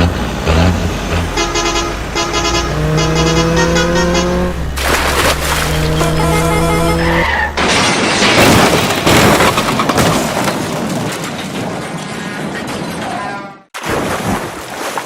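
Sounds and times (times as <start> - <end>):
steady horn-like tone: 1.3 - 7.7.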